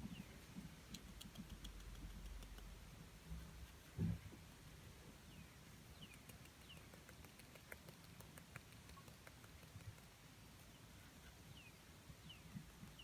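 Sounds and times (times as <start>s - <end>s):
faint ticks: 0.8s - 2.8s, 6.0s - 11.4s
faint bird chirps: 3.8s - 7.8s.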